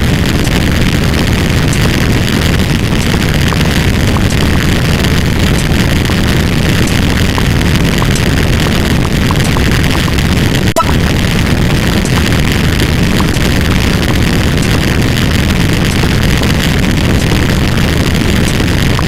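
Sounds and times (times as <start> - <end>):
heavy low rumble: 0.0 - 19.0.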